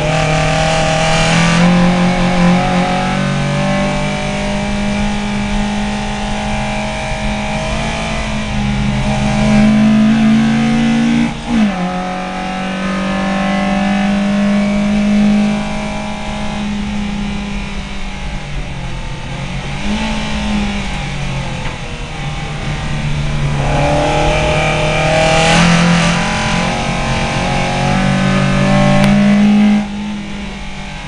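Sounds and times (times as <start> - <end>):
race car engine revving: 0.0 - 31.0.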